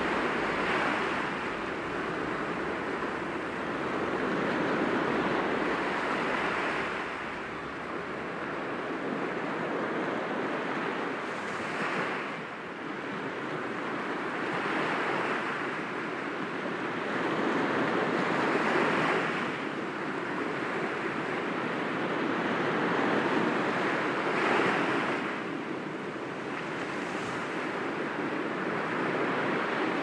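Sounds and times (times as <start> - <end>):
sea waves breaking against rocks: 0.0 - 9.8.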